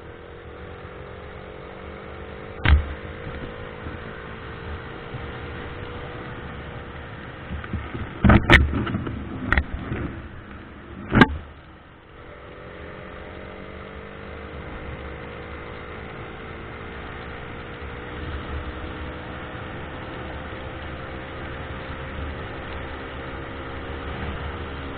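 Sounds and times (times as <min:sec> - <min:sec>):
car driving drone: 0:00.0 - 0:24.9
sharp knocks and thumps: 0:02.6 - 0:03.1, 0:07.5 - 0:10.2, 0:11.0 - 0:11.6.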